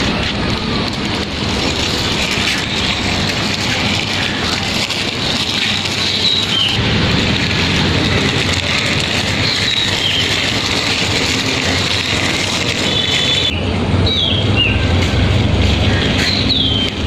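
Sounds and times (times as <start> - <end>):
vehicle engine rumble: 0.0 - 17.0
bird chirps: 12.9 - 14.8, 16.2 - 16.9.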